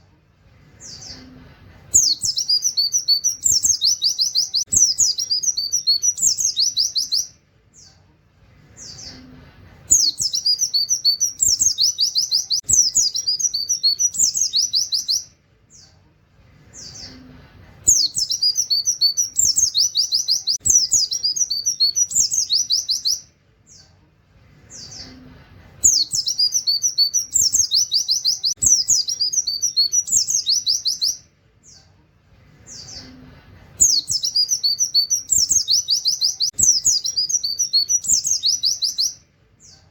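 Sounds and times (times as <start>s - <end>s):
bird twittering song: 0.8s - 8.0s, 9.9s - 16.0s, 17.9s - 24.0s, 25.8s - 31.9s, 33.8s - 39.9s.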